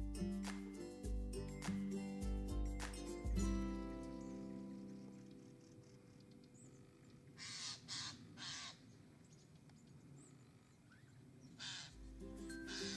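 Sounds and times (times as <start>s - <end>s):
faint outdoor ambience: 0.0s - 12.9s
harsh cawing bird calls: 6.7s - 9.0s, 11.6s - 12.0s
small high bird chirps: 8.7s - 12.9s.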